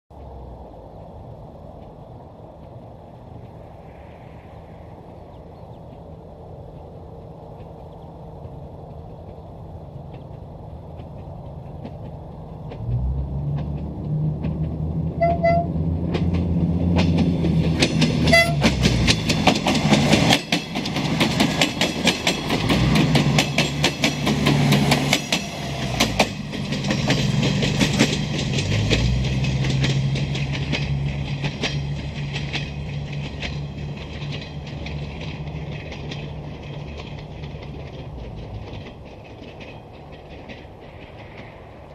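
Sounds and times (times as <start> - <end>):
diesel train engine humming: 0.1 - 41.9
wheels clicking over rail joints: 0.1 - 41.9
train horn blasts: 15.1 - 16.0, 18.2 - 18.8.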